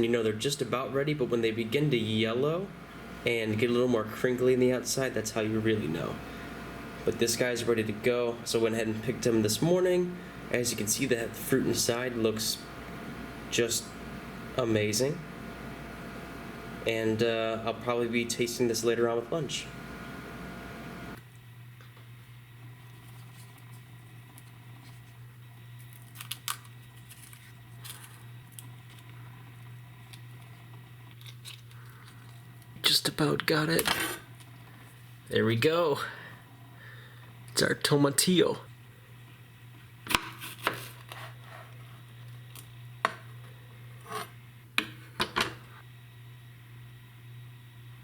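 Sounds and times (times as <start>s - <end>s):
steady low hum: 0.0s - 48.0s
husk crackling as peeled: 25.7s - 32.7s.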